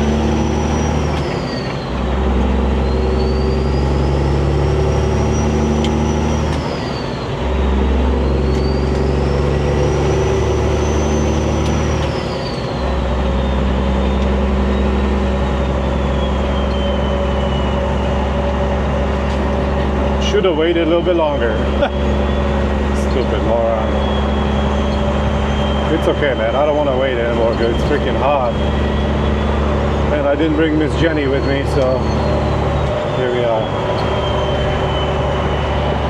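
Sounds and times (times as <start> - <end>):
diesel truck engine accelerating: 0.0 - 36.0
high whine: 9.7 - 36.0.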